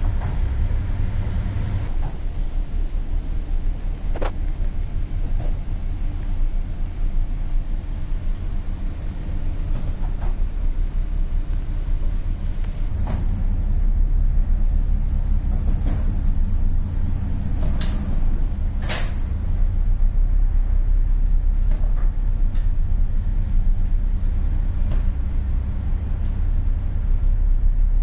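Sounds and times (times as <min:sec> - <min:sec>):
ship engine rumble: 0:00.0 - 0:28.0.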